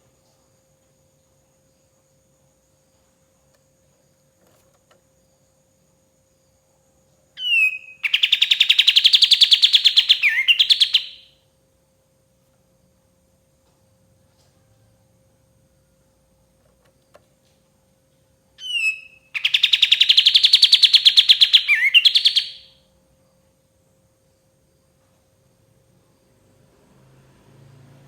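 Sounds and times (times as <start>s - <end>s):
bulbul singing rattling trill: 7.4s - 11.4s, 18.6s - 22.8s.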